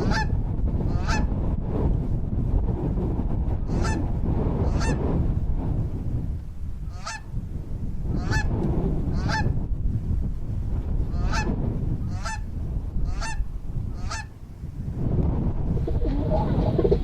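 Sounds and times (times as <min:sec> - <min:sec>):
steady low rumble: 0:12.4 - 0:17.0.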